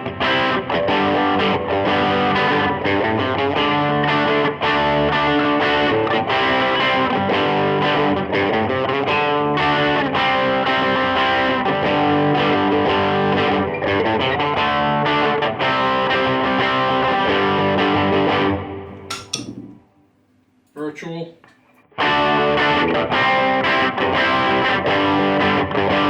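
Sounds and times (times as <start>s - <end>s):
overdriven electric guitar: 0.0s - 19.8s, 21.9s - 26.0s.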